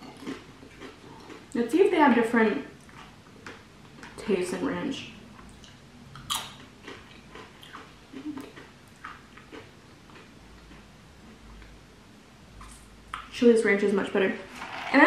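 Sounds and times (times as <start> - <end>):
person chewing crunchy food: 0.0 - 1.6, 5.4 - 11.7.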